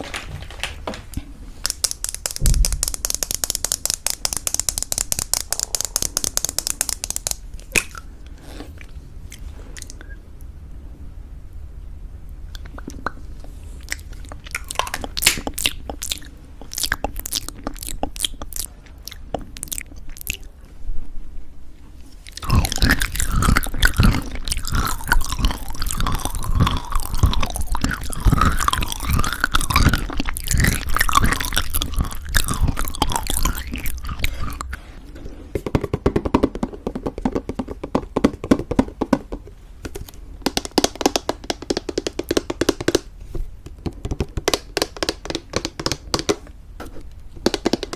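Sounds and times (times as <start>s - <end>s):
wet mouth sounds: 1.6s - 10.2s, 12.5s - 20.6s, 22.2s - 34.9s
chewing crunchy granola: 22.2s - 34.8s.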